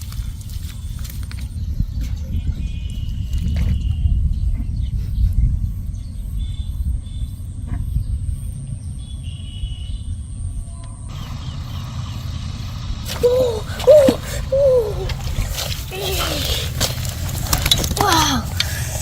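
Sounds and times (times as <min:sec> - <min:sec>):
wind buffeting microphone: 0:00.0 - 0:09.2, 0:09.9 - 0:19.0
faint high bird calls: 0:06.3 - 0:16.8.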